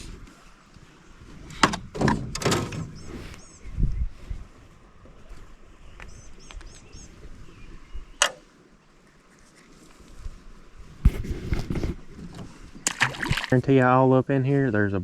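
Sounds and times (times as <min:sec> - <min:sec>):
knocks and bumps in a boat: 0:01.2 - 0:03.4
high bird chirps: 0:02.9 - 0:03.8, 0:05.9 - 0:08.3.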